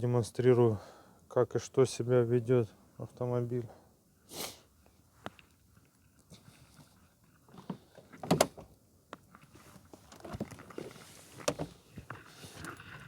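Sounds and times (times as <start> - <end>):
van door clicks and clunks: 8.2 - 8.7, 11.4 - 11.8.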